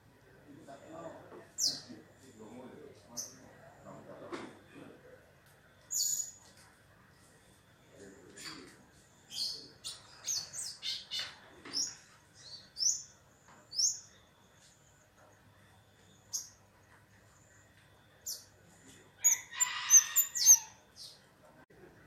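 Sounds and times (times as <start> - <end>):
songbird high-pitched chirps: 1.5 - 1.9, 3.1 - 3.4, 5.8 - 6.5, 8.4 - 15.0, 15.7 - 16.6, 18.2 - 21.2.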